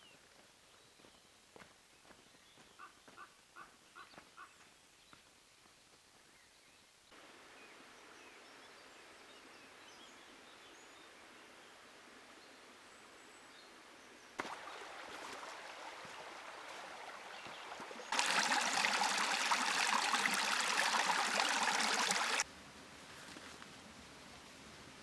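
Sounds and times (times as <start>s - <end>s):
river water rushing: 14.4s - 22.4s.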